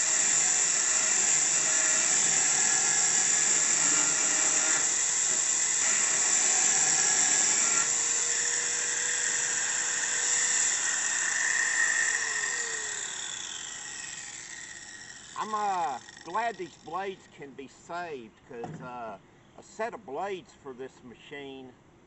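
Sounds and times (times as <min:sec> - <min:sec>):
angle grinder grinding steel: 0:00.0 - 0:17.3.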